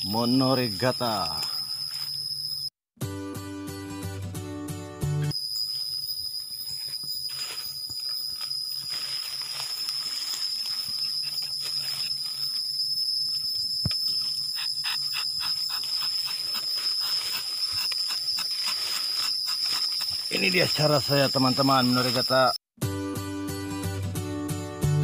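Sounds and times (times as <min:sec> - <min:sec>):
high-pitched whine: 0:08.4 - 0:22.6
knife scraping tree bark: 0:13.9 - 0:20.5.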